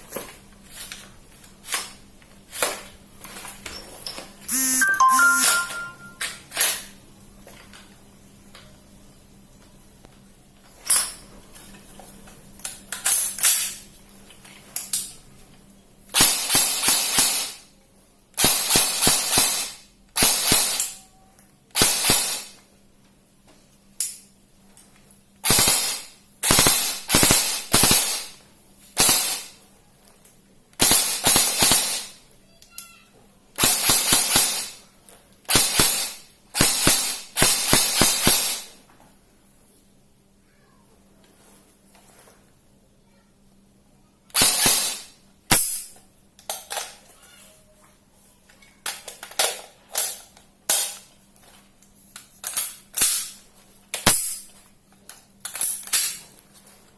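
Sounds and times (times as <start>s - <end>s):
airsoft gun firing: 18.4s - 20.9s, 21.8s - 22.5s, 25.4s - 28.3s, 29.0s - 29.5s, 30.8s - 32.1s, 33.6s - 34.7s, 35.5s - 38.6s, 44.4s - 45.8s.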